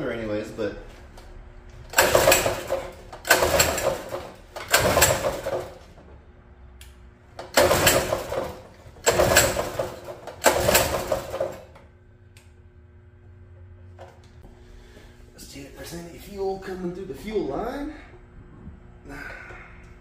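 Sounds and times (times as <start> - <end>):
small engine pull-start cranking: 1.9 - 5.8, 7.4 - 11.7.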